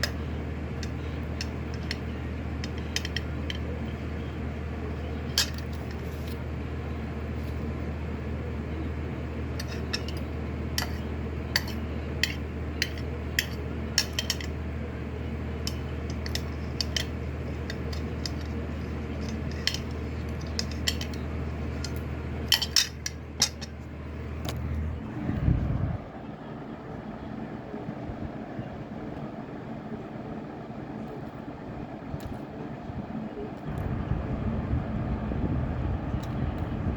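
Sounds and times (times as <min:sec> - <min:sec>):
utensils clinking against a bowl: 0:00.0 - 0:04.0, 0:04.9 - 0:06.4, 0:09.6 - 0:14.6, 0:15.6 - 0:23.9
electric fan hum: 0:00.0 - 0:36.9.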